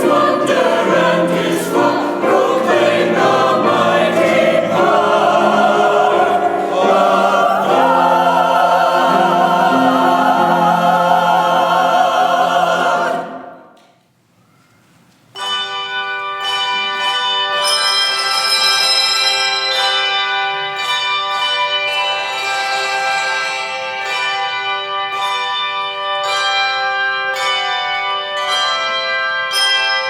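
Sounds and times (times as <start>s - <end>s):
church choir singing: 0.0s - 13.8s
bell-like ringing tones: 17.6s - 20.5s.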